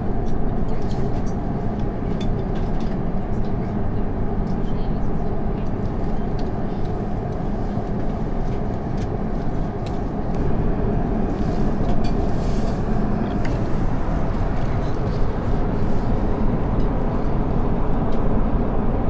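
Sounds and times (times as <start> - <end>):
airliner cabin roar: 0.0 - 19.0.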